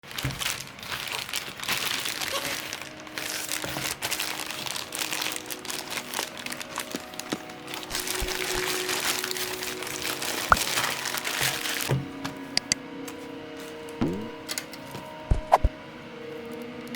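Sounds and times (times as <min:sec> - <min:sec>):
packaging crinkling: 0:00.1 - 0:12.0.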